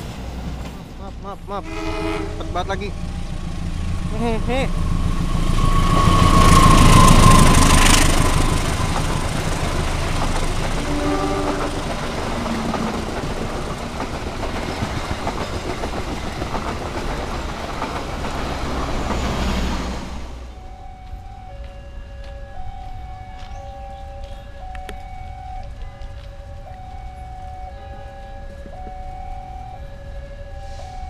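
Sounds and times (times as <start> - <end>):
train coaches rumbling past: 0.0 - 31.0
locomotive horn: 1.6 - 3.1, 5.6 - 8.9, 10.7 - 13.7, 25.4 - 31.0.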